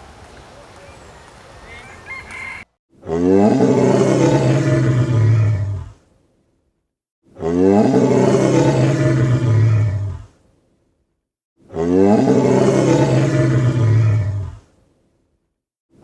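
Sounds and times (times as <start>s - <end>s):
animal deep roaring call: 2.3s - 6.0s, 7.4s - 10.4s, 11.7s - 14.7s.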